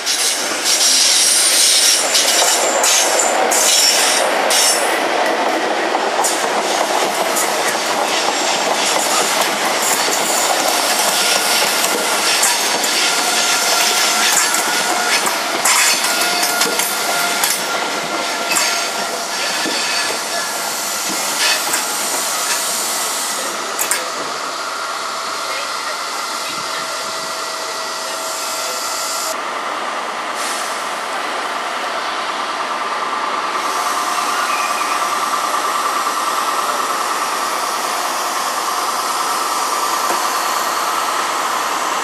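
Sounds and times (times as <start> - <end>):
train wheel and rail noise: 0.0 - 42.0.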